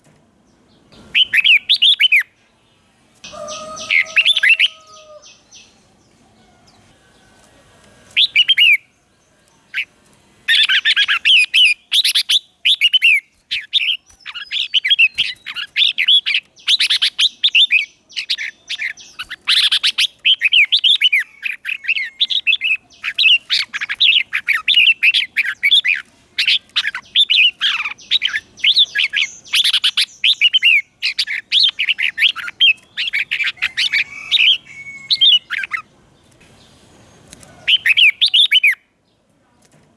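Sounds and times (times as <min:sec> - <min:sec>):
bulbul singing warbled phrases: 0:01.0 - 0:02.4, 0:03.2 - 0:05.9, 0:08.2 - 0:08.9, 0:10.5 - 0:35.9, 0:37.3 - 0:38.9.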